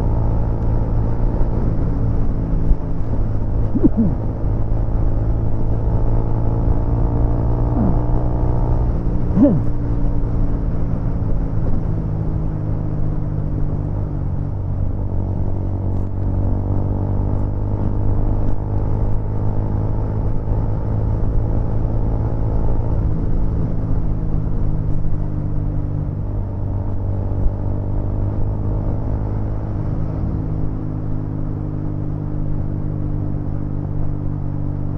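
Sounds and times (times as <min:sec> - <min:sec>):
motorcycle engine cruising: 0:01.0 - 0:14.0.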